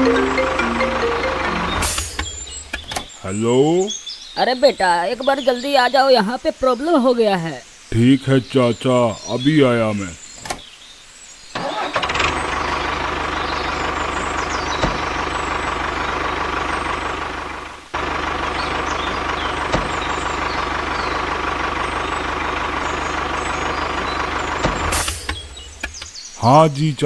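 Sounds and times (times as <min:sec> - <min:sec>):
miniature vehicle motor whining: 0:11.6 - 0:25.6.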